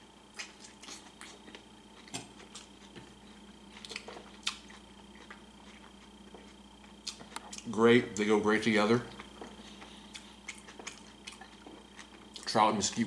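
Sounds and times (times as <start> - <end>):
person chewing food: 0.3 - 7.8, 9.1 - 12.6
wet mouth smacks and clicks: 7.0 - 7.7.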